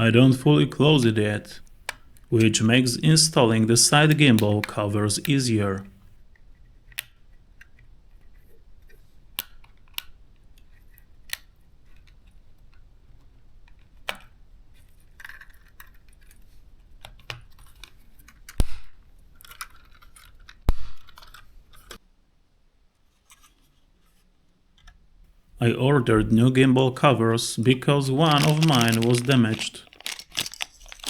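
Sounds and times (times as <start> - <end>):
light rustling: 28.1 - 31.0
plastic parts clicking: 28.1 - 31.0
plastic snaps: 28.1 - 31.0.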